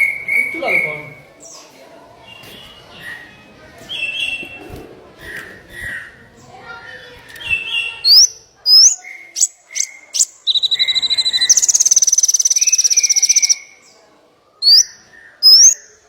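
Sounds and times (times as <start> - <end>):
songbirds chirping: 0.0 - 16.0
bird fast pulsed trill: 8.8 - 13.6.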